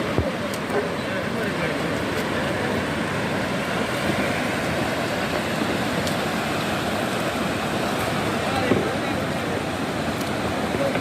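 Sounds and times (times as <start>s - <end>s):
boat engine: 0.0s - 11.0s
water: 0.0s - 11.0s
wind: 0.0s - 11.0s.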